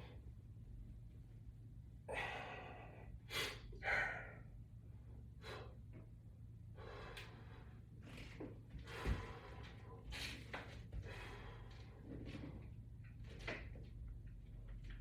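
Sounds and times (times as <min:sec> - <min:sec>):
person breathing out hard: 0:02.1 - 0:04.5.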